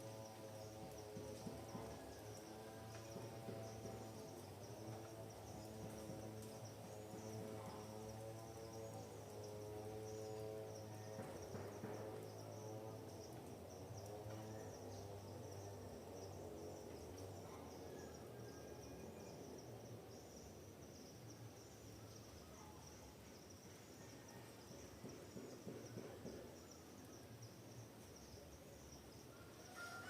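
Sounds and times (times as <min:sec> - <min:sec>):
distant engine drone: 0:00.0 - 0:29.9
insects chirring: 0:00.0 - 0:30.0.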